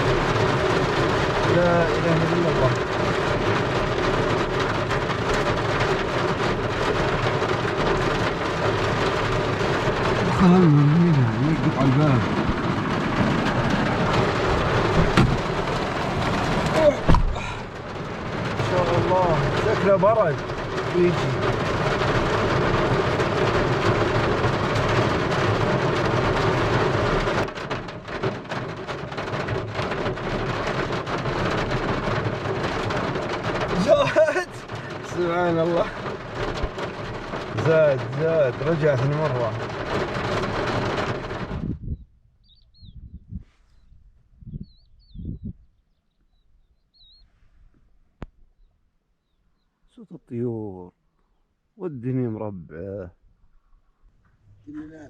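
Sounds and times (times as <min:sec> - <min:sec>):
heavy rain falling: 0:00.0 - 0:41.7
low rumble of thunder: 0:00.0 - 0:43.6, 0:44.3 - 0:45.7.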